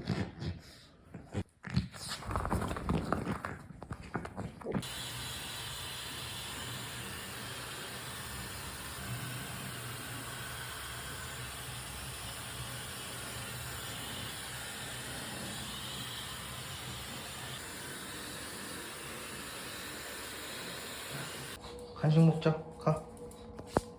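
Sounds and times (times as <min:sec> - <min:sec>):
hair dryer blowing: 0:04.8 - 0:21.6.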